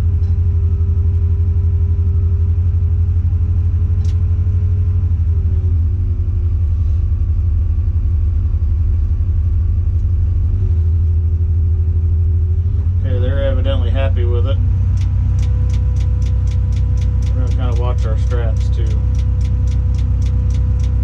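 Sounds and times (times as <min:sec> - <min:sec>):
diesel engine running: 0:00.0 - 0:21.0
sharp click: 0:14.9 - 0:21.0.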